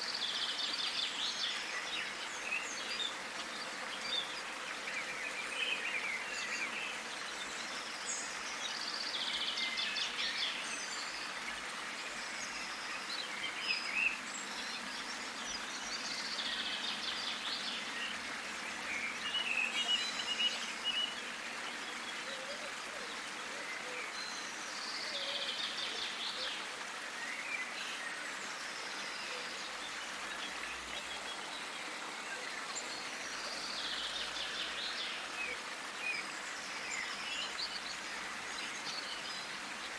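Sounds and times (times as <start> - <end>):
outdoor background hiss: 0.0 - 39.9
songbirds chirping and trilling: 0.0 - 39.9.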